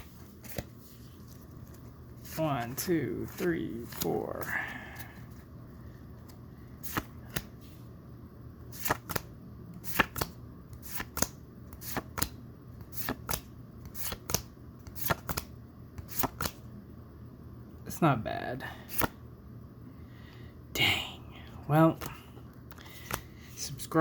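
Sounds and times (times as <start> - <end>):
trading cards flipped by hand: 0.0 - 2.4, 6.2 - 7.6, 8.7 - 16.6, 18.9 - 19.2, 22.0 - 23.3.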